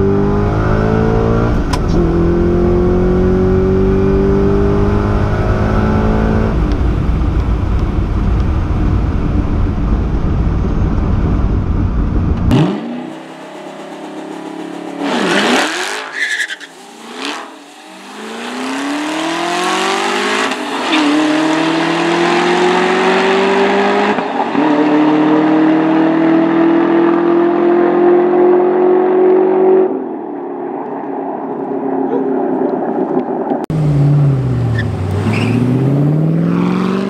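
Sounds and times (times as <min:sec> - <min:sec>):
car engine accelerating hard: 0:00.0 - 0:16.1, 0:16.8 - 0:30.0, 0:33.7 - 0:37.0
harsh rush of noise: 0:07.0 - 0:24.5.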